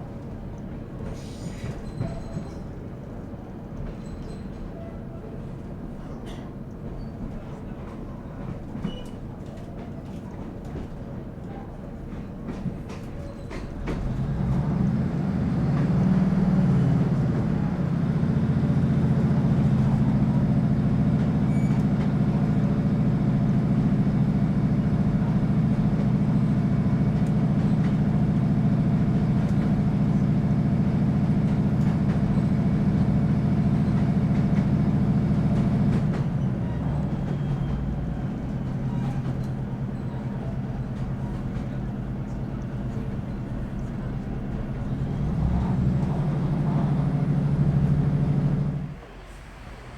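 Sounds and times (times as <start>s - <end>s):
diesel engine droning: 14.0s - 49.9s.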